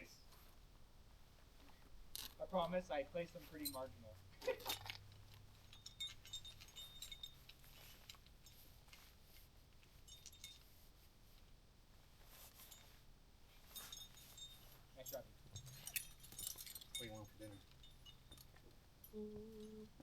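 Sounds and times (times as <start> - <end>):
climbing gear clinking: 2.1 - 2.8, 3.4 - 10.9, 12.4 - 20.0.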